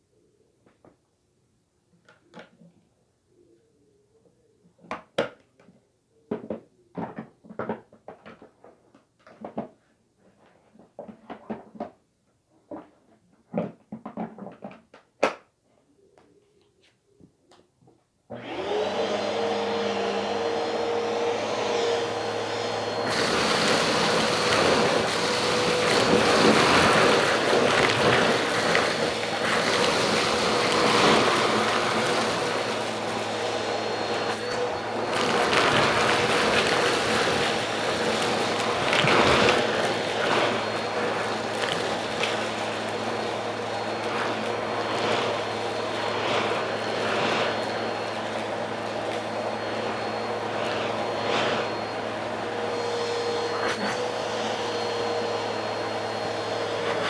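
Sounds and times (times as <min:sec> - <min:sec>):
appliance motor whining: 0:18.3 - 0:57.0.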